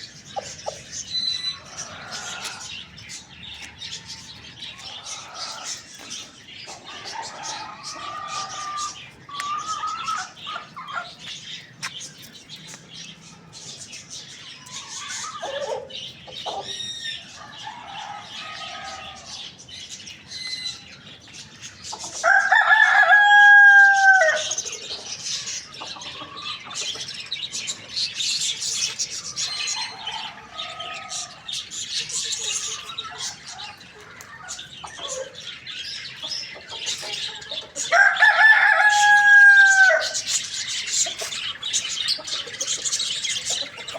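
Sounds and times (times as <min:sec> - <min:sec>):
hens clucking: 0:00.0 - 0:43.9
rooster crowing: 0:17.4 - 0:19.4, 0:22.2 - 0:24.6, 0:37.8 - 0:40.3.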